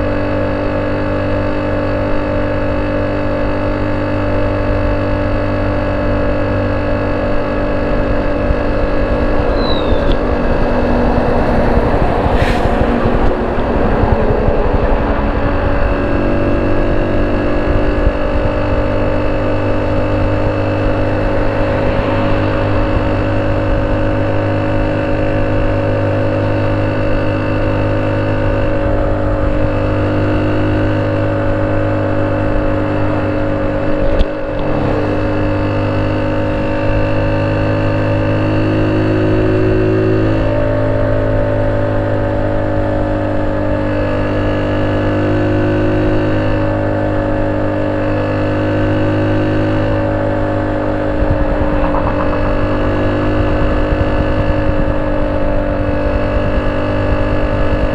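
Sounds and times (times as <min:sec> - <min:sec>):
motorcycle engine idling: 0:50.6 - 0:55.8.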